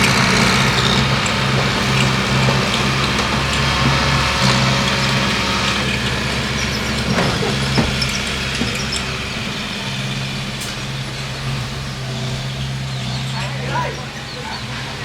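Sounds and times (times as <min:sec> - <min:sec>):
bulldozer engine running: 0:00.0 - 0:15.0.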